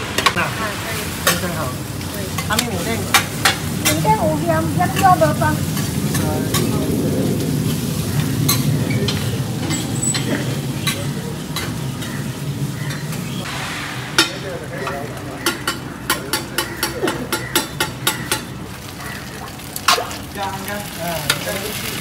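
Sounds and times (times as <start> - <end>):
omelette sizzling in a wok: 18.7 - 22.0.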